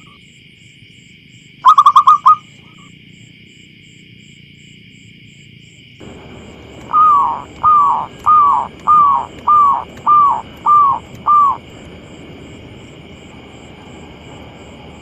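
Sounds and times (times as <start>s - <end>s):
dove cooing: 1.6s - 2.8s, 6.1s - 11.8s
high pulsing drone: 6.0s - 15.0s.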